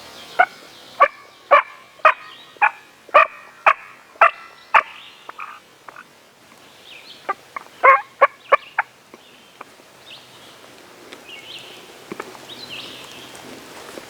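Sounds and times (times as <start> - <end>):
small birds chirping: 0.0 - 13.4
turkey calling: 0.4 - 6.1, 7.2 - 8.9.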